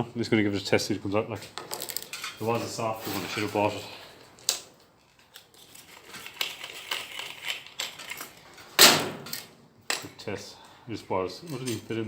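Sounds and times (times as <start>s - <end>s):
tools clattering: 1.6s - 3.9s, 4.5s - 10.2s, 11.4s - 12.0s.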